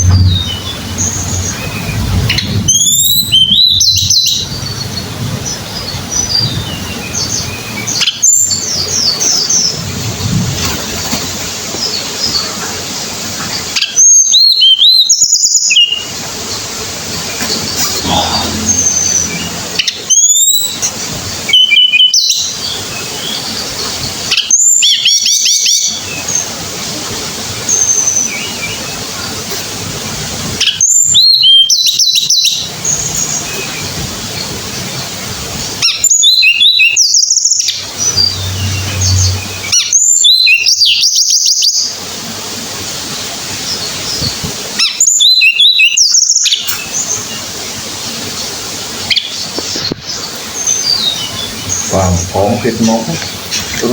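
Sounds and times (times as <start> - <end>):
low steady hum: 0.0 - 2.7, 17.4 - 20.1, 37.8 - 40.0
bird singing high whistles: 2.7 - 4.4, 36.0 - 41.9
songbird singing whistled phrases: 44.9 - 47.1.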